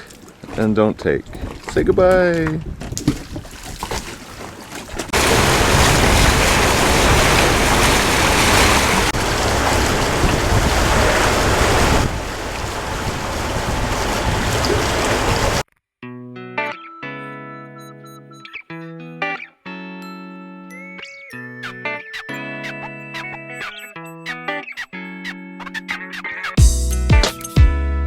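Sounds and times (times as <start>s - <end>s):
water rushing past boat: 0.0s - 15.6s
wind buffeting microphone: 0.4s - 4.0s, 5.0s - 15.6s.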